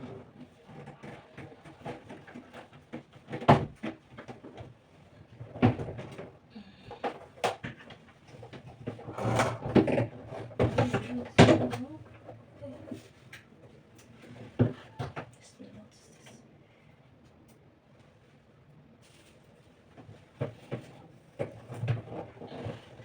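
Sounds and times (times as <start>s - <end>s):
plastic machine knocking and clattering: 0.0s - 12.4s, 20.0s - 23.0s.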